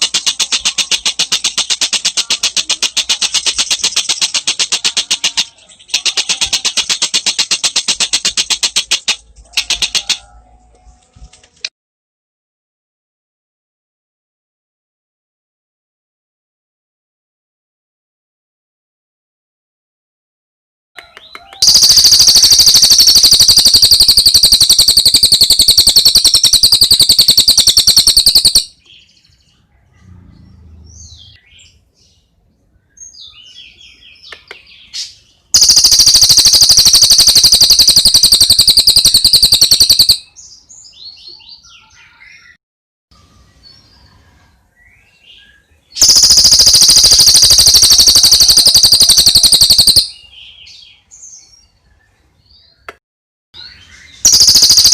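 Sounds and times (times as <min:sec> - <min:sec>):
bird chirps: 0:00.0 - 0:10.4, 0:21.0 - 0:42.6, 0:43.2 - 0:53.0, 0:53.6 - 0:54.9
bird fast high trill: 0:21.6 - 0:28.8, 0:35.6 - 0:40.4, 0:45.9 - 0:50.3, 0:54.2 - 0:54.9.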